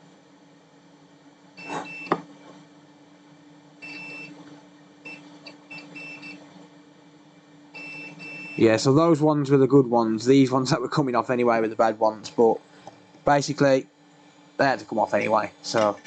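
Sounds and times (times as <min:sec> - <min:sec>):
steady low hum: 0:04.8 - 0:16.0.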